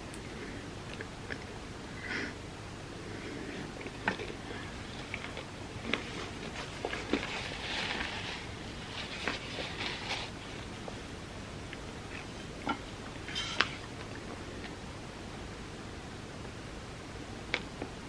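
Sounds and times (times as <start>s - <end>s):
chewing soft sticky food: 0.0s - 1.6s
breathy rustle: 3.0s - 10.7s.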